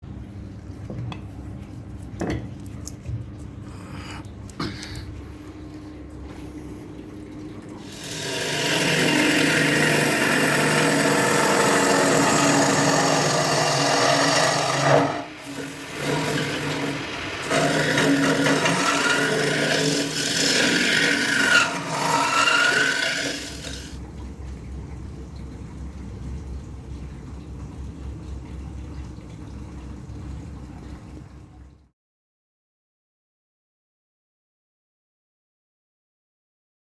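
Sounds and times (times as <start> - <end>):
tool rasping against spinning wood: 7.8 - 24.0
wood lathe running: 7.8 - 24.0.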